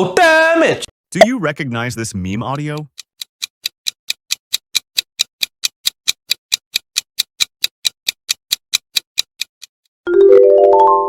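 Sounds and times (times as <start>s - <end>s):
countdown timer ticking: 1.1s - 9.7s.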